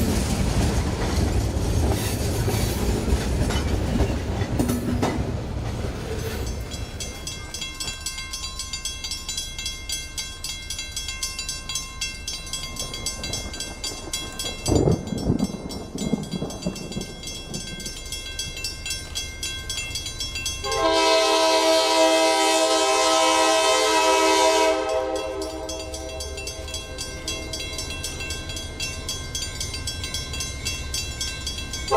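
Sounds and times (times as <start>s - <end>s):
train wheels clicking over rails: 0.0s - 23.0s
locomotive multi-note horn: 20.6s - 26.6s.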